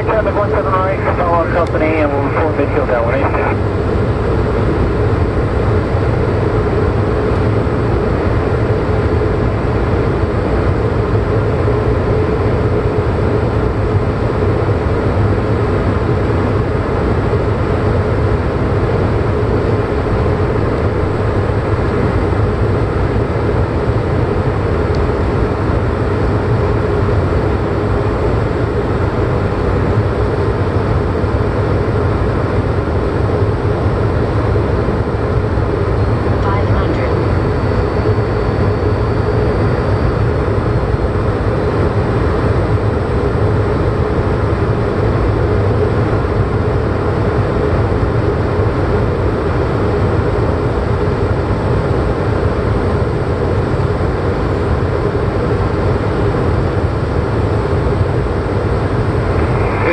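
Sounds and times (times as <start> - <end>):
propeller aircraft engine drone: 0.0 - 59.9
airflow noise: 58.1 - 59.9.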